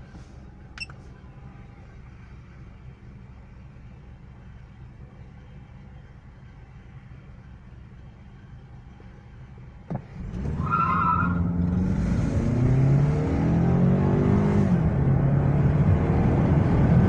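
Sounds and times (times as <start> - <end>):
car engine revving: 9.9 - 17.0
tire squeal: 10.3 - 11.8.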